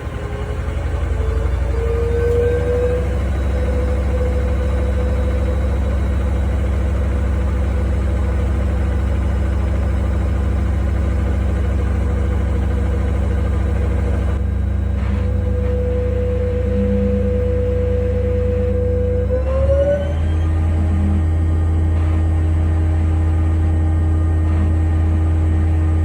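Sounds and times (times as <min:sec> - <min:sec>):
washing machine spinning: 0:00.0 - 0:26.0.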